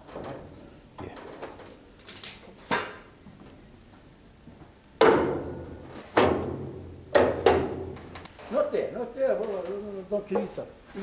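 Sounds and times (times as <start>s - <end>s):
heavy knocks on steel car body: 5.0s - 8.2s.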